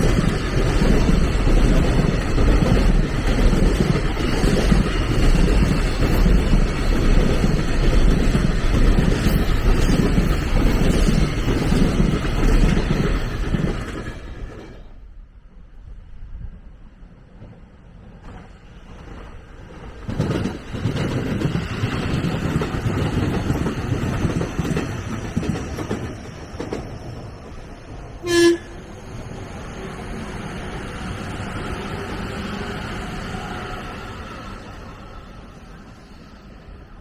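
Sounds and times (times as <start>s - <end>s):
train rolling past: 0.0s - 37.0s
train horn blast: 28.2s - 29.0s.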